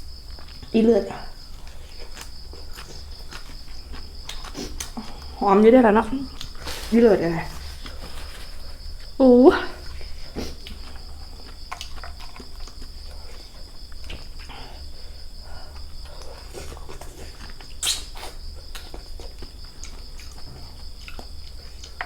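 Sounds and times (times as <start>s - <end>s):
crickets chirring: 0.0s - 22.0s
chewing clicks and crunches: 1.6s - 5.3s, 6.3s - 6.7s, 9.9s - 14.5s, 15.7s - 22.0s.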